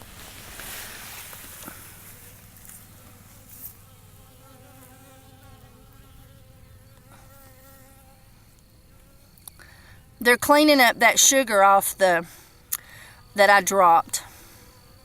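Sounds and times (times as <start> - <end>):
honey bees buzzing: 0.0 - 15.0
faint clicks: 9.4 - 9.7.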